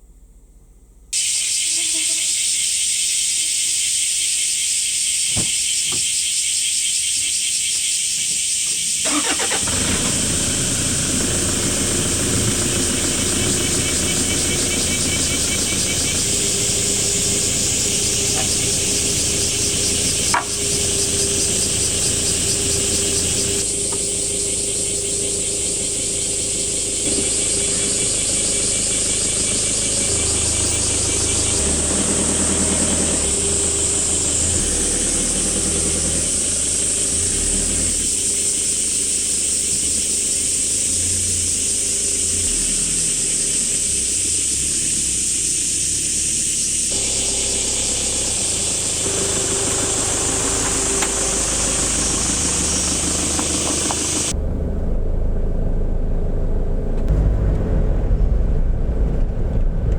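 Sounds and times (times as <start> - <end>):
vehicle engine rumble: 0.0 - 59.9
steady high hiss: 1.2 - 9.5.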